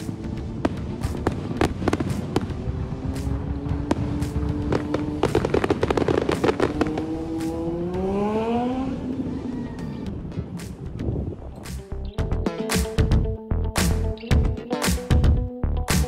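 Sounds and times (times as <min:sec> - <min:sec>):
vehicle engine humming: 0:00.0 - 0:09.5
fireworks bangs and crackling: 0:00.0 - 0:10.9.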